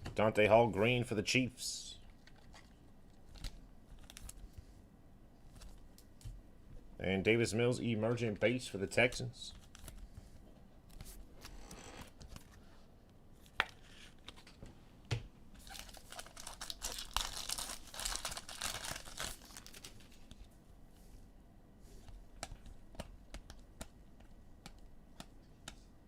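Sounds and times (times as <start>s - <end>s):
wrapper tearing and crinkling: 15.6s - 20.2s
cards clicking and tapping: 22.1s - 25.9s.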